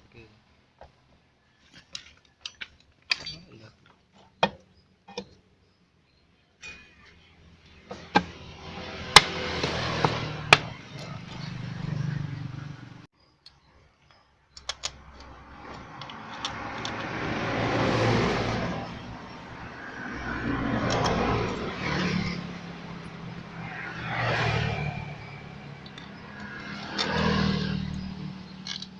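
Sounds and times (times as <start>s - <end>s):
road noise: 0.0s - 28.9s
sharp clicks: 14.6s - 17.2s.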